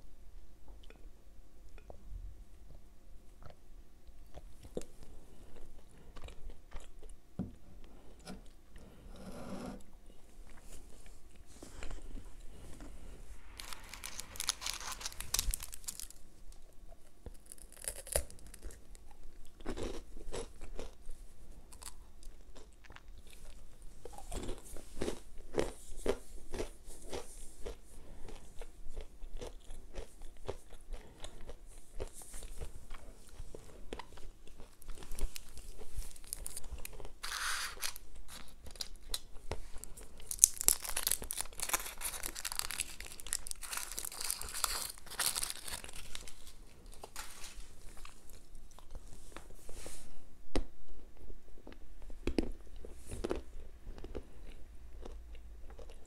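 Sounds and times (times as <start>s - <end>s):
chewing crunchy sweets: 3.4s - 9.0s, 10.4s - 49.5s, 51.1s - 56.0s
paper wrapper crinkling: 13.4s - 16.7s, 34.8s - 48.5s.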